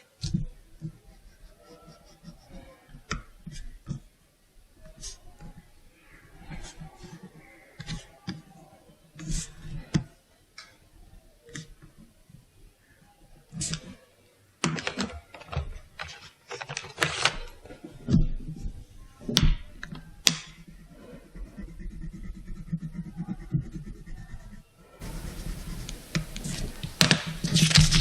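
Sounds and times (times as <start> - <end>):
pen scratching on paper: 0.2 - 4.0, 4.9 - 5.7, 6.4 - 8.4, 9.2 - 10.0, 19.8 - 28.0
rustling: 25.0 - 28.0.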